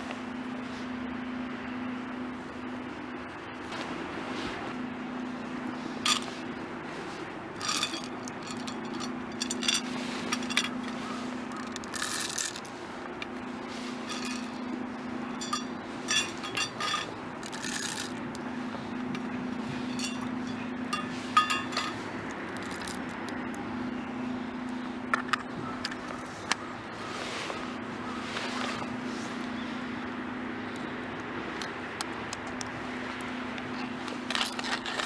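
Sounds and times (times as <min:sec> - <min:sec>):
steady low hum: 0:00.0 - 0:35.0
camp cookware clinking: 0:05.6 - 0:27.1, 0:31.5 - 0:35.0.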